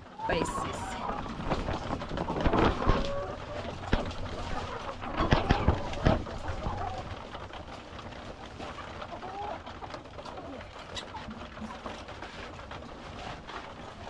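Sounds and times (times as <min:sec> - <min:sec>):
hens clucking: 0:00.0 - 0:14.0
rustling: 0:00.0 - 0:14.0.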